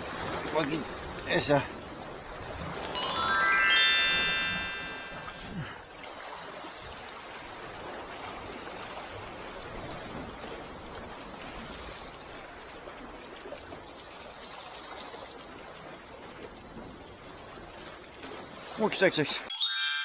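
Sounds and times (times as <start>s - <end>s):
water rushing: 0.0s - 10.4s, 18.5s - 19.5s.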